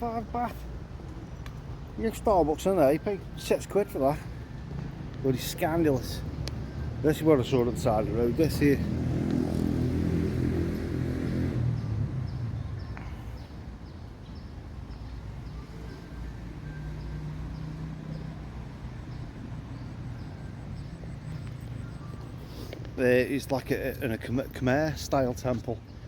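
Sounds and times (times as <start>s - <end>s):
vehicle engine passing: 5.9s - 12.8s
faint high chirp: 19.9s - 23.0s.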